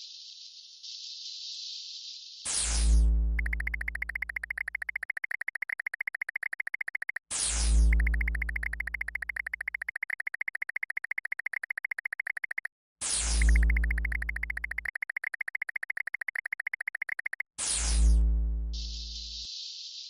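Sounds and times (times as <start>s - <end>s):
fast high beeps: 3.4s - 12.7s, 13.4s - 17.5s
deep bass tone: 18.1s - 19.2s.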